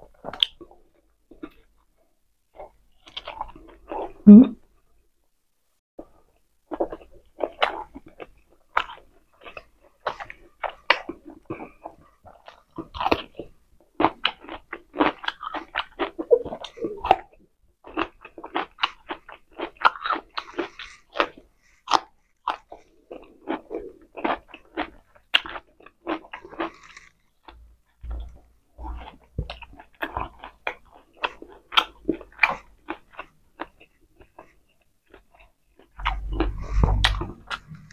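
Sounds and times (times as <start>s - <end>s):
wet chewing: 6.7s - 37.9s.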